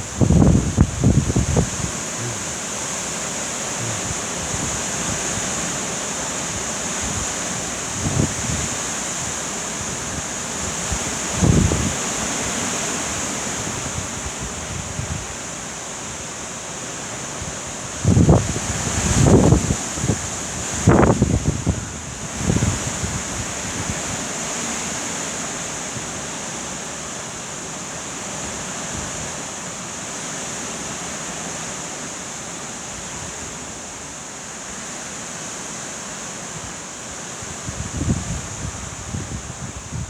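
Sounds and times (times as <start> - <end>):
wind buffeting microphone: 0.0 - 2.7, 3.8 - 5.6, 7.0 - 12.2, 18.0 - 24.0, 37.6 - 40.0
heavy rain pouring: 0.0 - 26.3.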